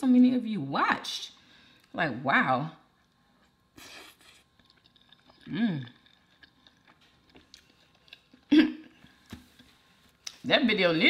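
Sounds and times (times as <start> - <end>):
person chewing food: 2.9 - 10.4.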